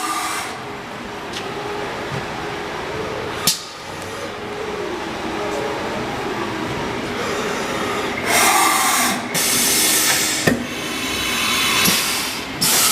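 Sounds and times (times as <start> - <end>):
machine mechanical hum: 0.0 - 12.9
loud hissing blasts: 7.3 - 12.9.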